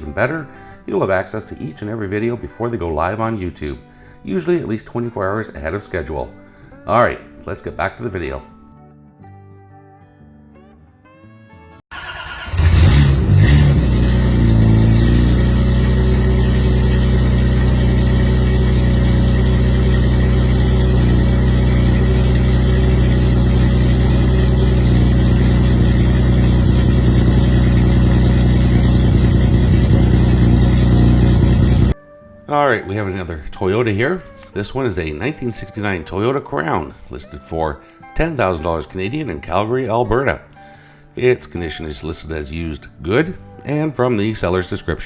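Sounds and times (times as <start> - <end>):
small engine starting and idling: 11.9 - 32.0.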